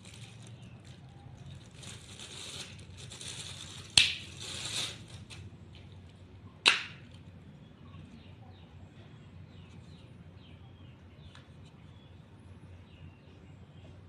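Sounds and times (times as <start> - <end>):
soft rustling handling noise: 0.0 - 6.3.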